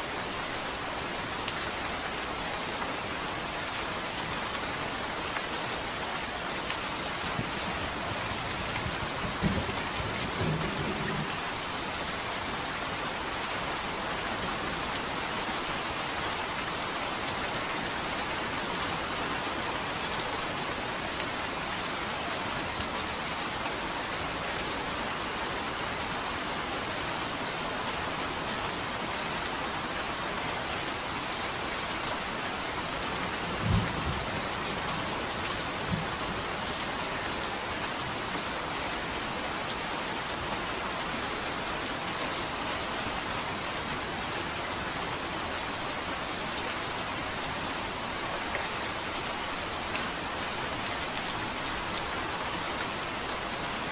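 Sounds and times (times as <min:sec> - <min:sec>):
steady rain falling: 0:00.0 - 0:53.9
low thunderclap: 0:08.8 - 0:11.4.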